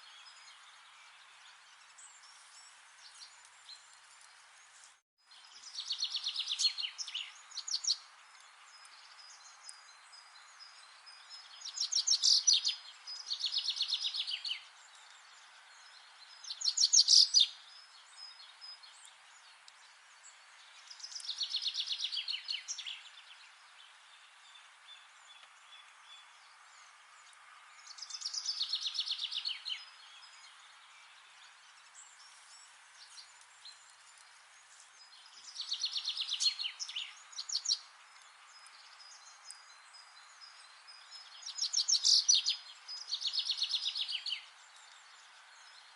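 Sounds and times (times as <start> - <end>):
steady background hiss: 0.0 - 45.9
songbirds singing trilled phrases: 5.3 - 45.9.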